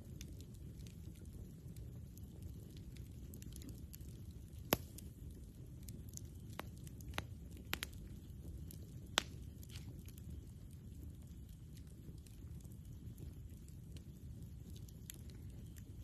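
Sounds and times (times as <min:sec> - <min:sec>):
campfire crackling: 0:00.0 - 0:16.0
low steady rumble: 0:00.0 - 0:16.0.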